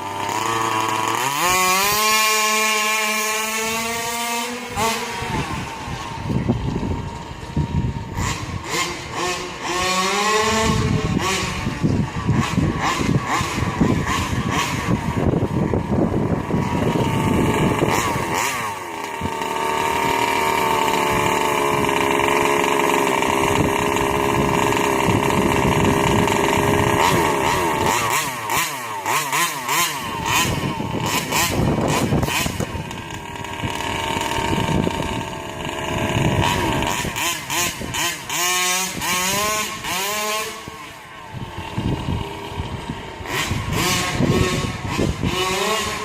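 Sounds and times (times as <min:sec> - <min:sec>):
small two-stroke engine revving: 0:00.0 - 0:46.0.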